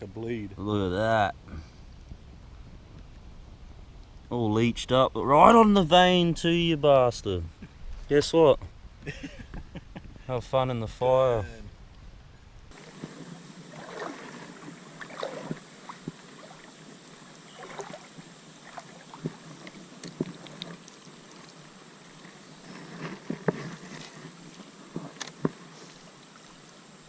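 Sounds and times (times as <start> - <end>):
creek water running: 12.7 - 27.0.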